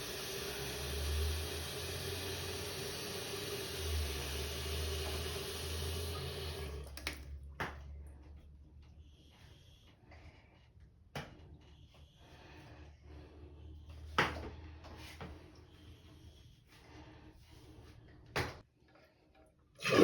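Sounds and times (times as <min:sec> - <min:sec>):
toilet tank refilling: 0:00.0 - 0:07.2, 0:19.8 - 0:20.0.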